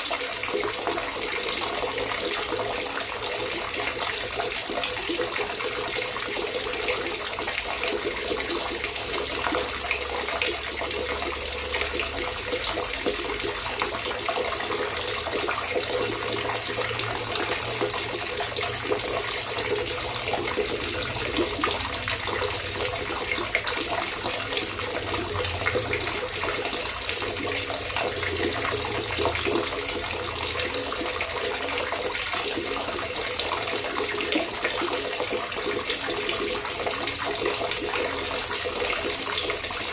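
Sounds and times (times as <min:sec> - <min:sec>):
water trickling and gurgling: 0:00.0 - 0:39.9.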